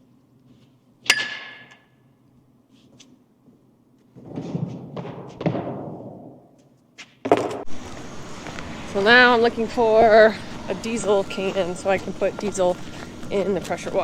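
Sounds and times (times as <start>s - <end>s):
sharp metallic clank: 1.1s - 1.9s.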